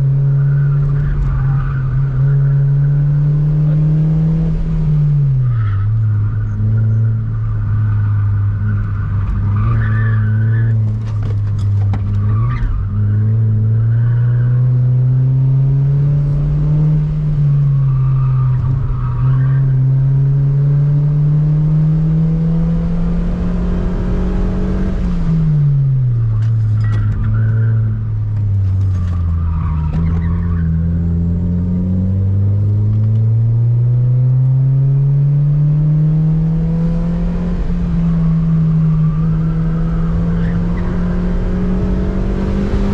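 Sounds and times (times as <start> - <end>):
car engine revving hard: 2.5 - 5.0, 30.9 - 42.9
tyre squeals: 5.5 - 14.6, 26.4 - 30.9.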